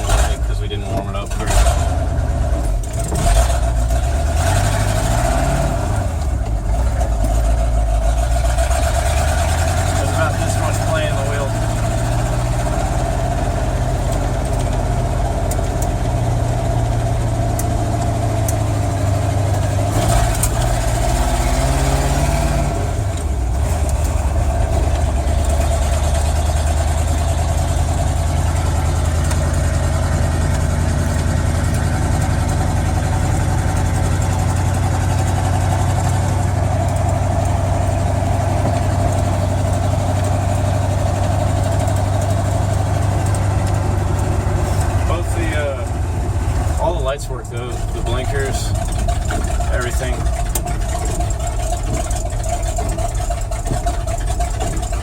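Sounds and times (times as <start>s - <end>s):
pickup truck engine driving: 0.0s - 55.0s.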